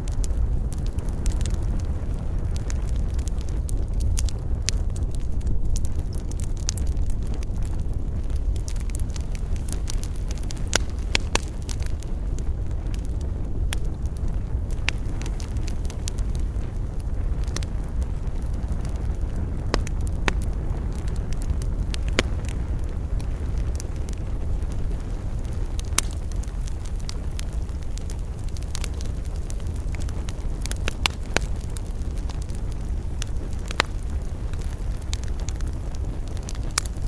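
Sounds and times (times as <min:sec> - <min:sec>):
campfire crackling and popping: 0:00.0 - 0:37.0
fire low rumble: 0:00.0 - 0:37.0.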